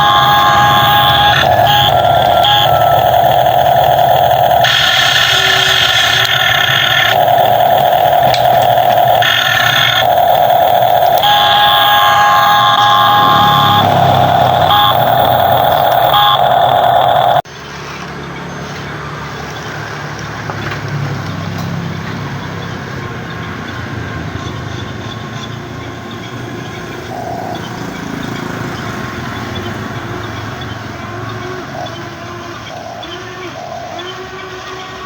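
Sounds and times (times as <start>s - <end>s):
electric machinery whirring: 0.0s - 17.4s, 22.2s - 35.0s
electronic reversing beeper: 0.0s - 17.4s, 27.1s - 35.0s.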